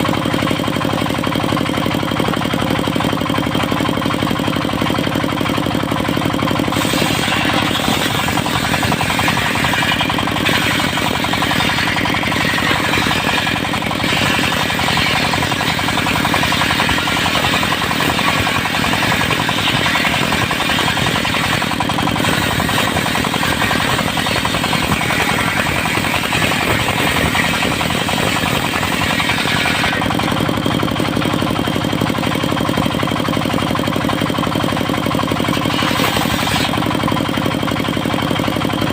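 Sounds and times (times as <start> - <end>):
saw blade cutting log: 0.0 - 38.9
sawmill engine running: 0.0 - 38.9.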